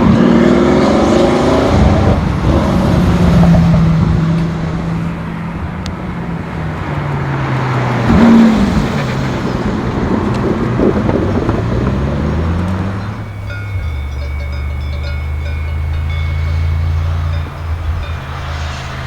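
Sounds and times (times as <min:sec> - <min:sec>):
supercar engine revving: 0:00.0 - 0:19.0.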